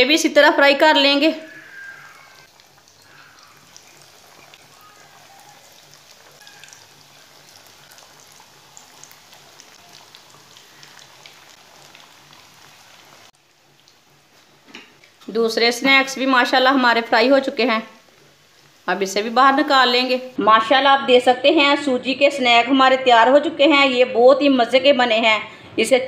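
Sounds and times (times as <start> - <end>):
deep-frying sizzle in oil: 0.1 - 20.4.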